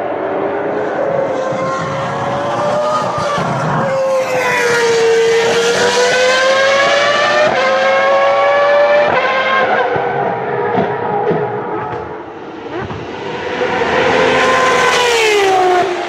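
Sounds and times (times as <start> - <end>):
racing car engine revving: 0.0 - 16.0.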